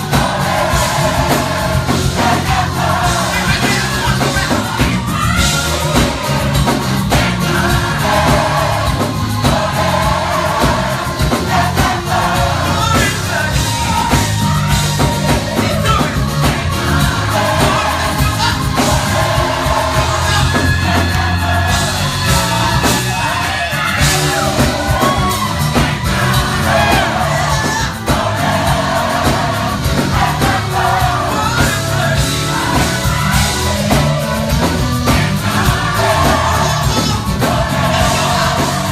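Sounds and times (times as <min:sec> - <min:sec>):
bass: 0:00.0 - 0:38.9
drums: 0:00.0 - 0:38.9
gospel choir singing: 0:00.0 - 0:38.9.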